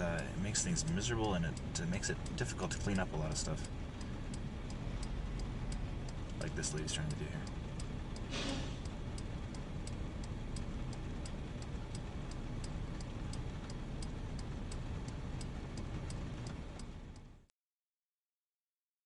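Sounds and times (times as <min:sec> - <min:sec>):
low rumble of vehicle: 0:00.0 - 0:17.5
car indicator relay ticking: 0:00.1 - 0:17.4.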